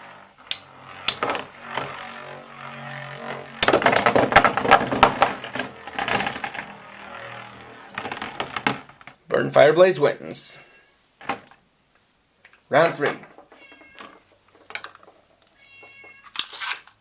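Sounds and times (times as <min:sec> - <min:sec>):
spinning tops whirring: 0:00.0 - 0:09.2.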